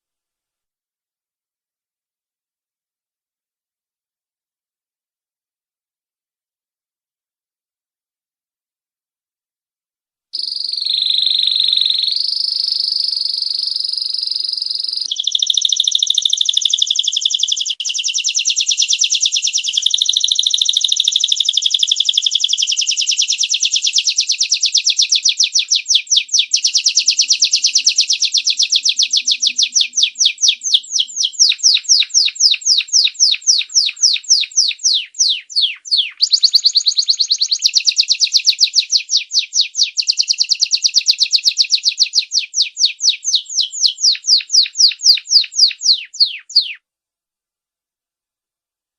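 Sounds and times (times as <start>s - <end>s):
canary singing: 10.4s - 46.8s.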